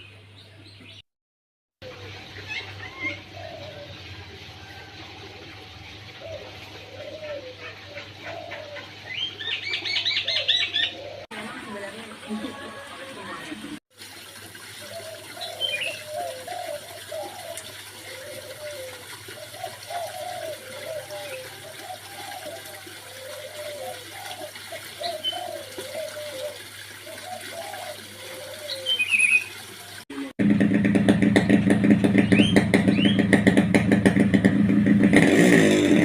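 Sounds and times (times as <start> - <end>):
birds cooing: 1.8 - 13.6, 14.6 - 30.0.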